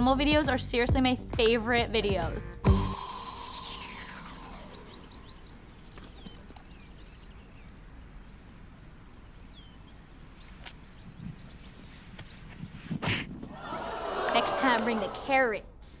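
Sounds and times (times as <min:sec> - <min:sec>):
birds chirping: 0:03.3 - 0:05.7.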